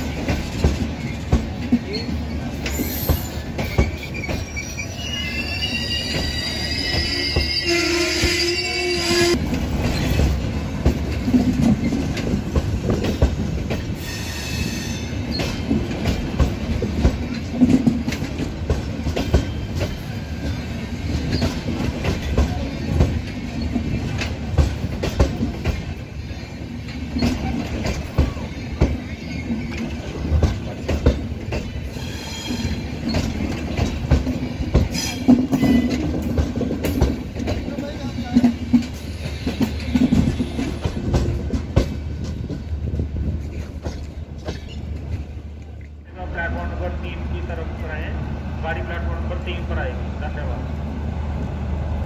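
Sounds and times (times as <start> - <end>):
train coaches clattering past: 0.0 - 52.0
metallic wheel squeals: 1.9 - 9.4.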